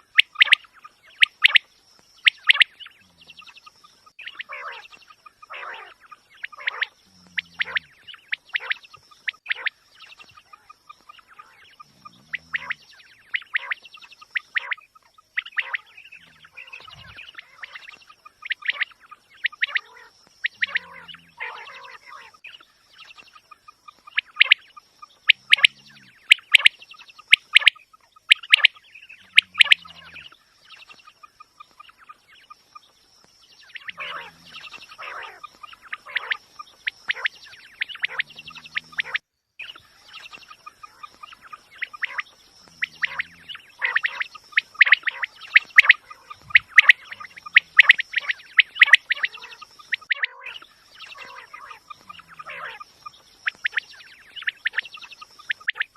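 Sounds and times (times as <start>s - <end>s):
quail calling: 0.0s - 32.9s, 33.6s - 55.9s
faint steady high tone: 24.2s - 30.4s.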